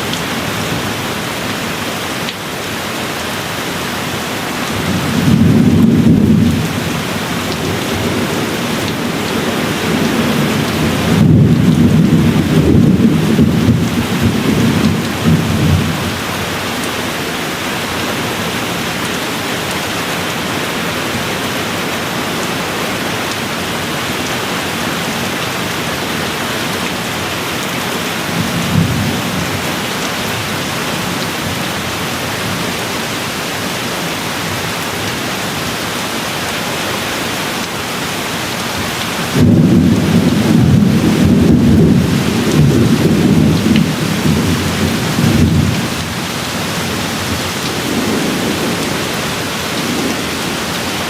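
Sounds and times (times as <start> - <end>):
steady rain falling: 0.0 - 51.0
thunder rumbling: 4.8 - 16.6, 39.2 - 51.0.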